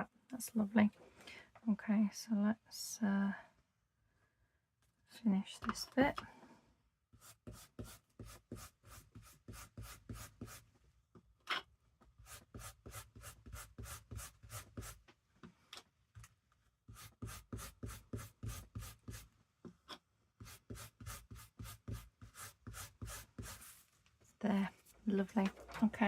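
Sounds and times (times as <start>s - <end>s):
stencil tool scrubbing fabric: 7.2s - 10.6s, 20.4s - 23.8s.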